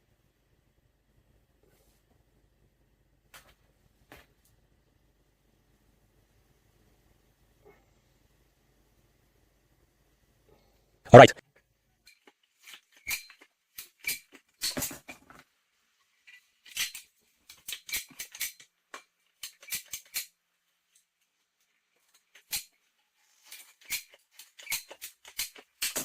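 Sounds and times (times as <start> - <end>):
plastic parts clicking and rattling: 16.2 - 26.0.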